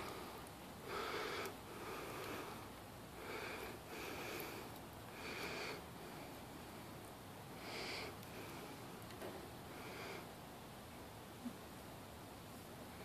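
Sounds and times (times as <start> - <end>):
breathing through the nose: 0.0 - 6.8, 7.6 - 8.9.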